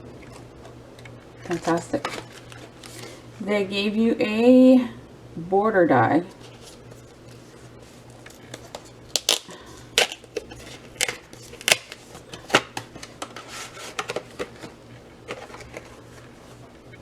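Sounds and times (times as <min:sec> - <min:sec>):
packaging clicks and crinkles: 0:01.5 - 0:03.2, 0:08.2 - 0:16.4.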